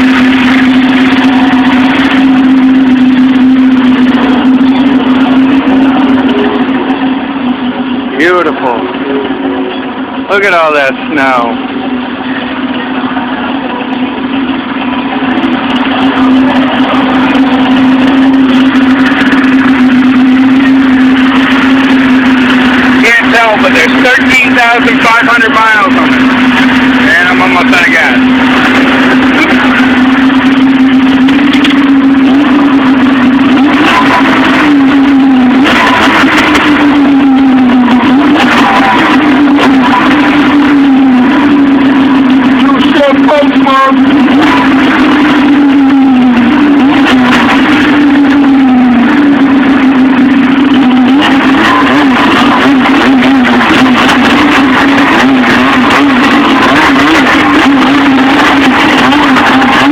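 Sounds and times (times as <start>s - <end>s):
snowmobile engine running: 0.0s - 59.9s
loud rushing noise: 14.8s - 59.9s.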